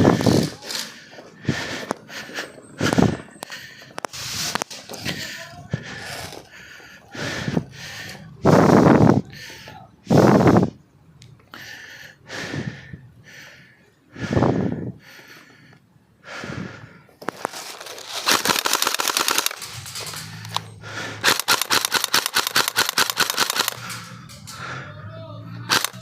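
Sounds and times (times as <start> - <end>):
airsoft rifle full-auto bursts: 17.4 - 20.6, 21.2 - 24.1, 25.7 - 26.0.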